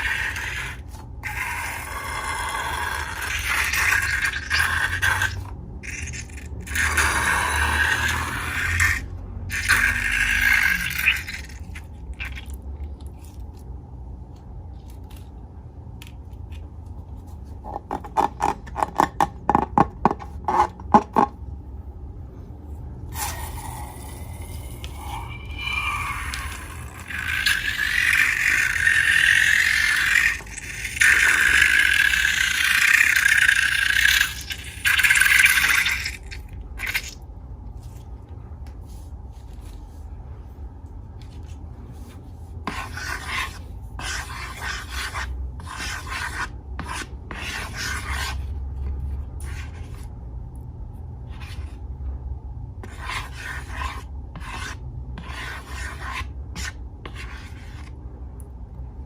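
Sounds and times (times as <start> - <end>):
rubbing and scraping strokes: 0.0 - 11.9, 23.1 - 36.2, 41.2 - 48.6, 52.8 - 58.0.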